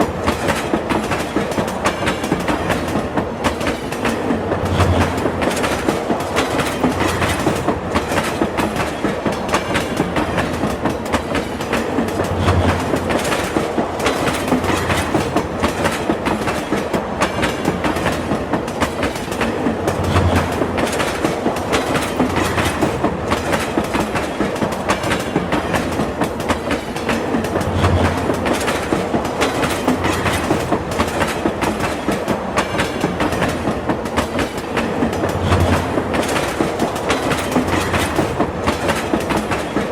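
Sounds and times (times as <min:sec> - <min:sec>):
train wheels clickety-clack: 0:00.0 - 0:39.9.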